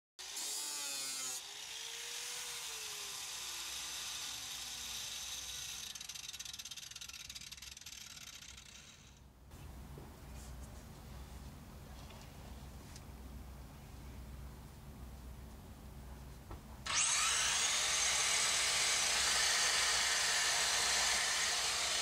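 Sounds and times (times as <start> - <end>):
power grinder grinding: 0.2 - 9.2, 16.9 - 22.0.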